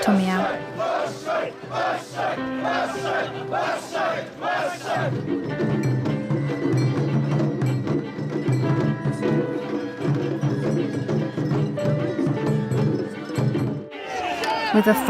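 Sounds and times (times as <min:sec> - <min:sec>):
drums: 0:05.1 - 0:14.0.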